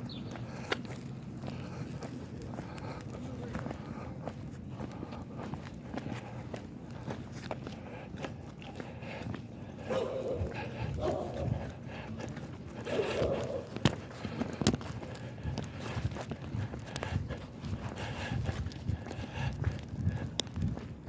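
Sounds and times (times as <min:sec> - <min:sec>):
footsteps: 0:00.0 - 0:21.0
dog barking: 0:09.8 - 0:11.7, 0:12.8 - 0:13.8.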